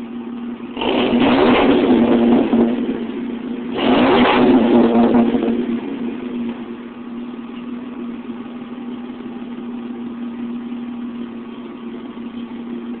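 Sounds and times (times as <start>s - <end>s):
pickup truck engine idling: 0.0s - 3.8s, 4.6s - 13.0s.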